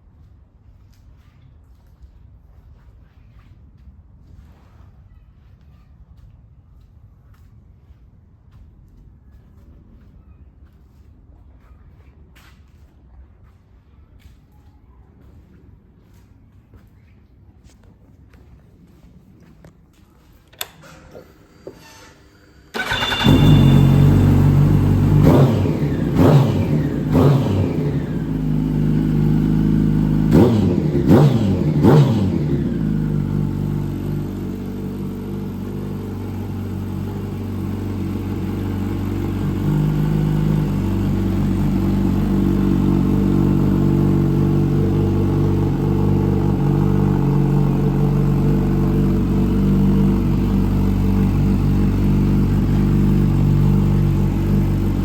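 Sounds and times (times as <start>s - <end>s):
engine revving blips: 22.7s - 33.5s
motorcycle engine idling: 22.7s - 55.0s.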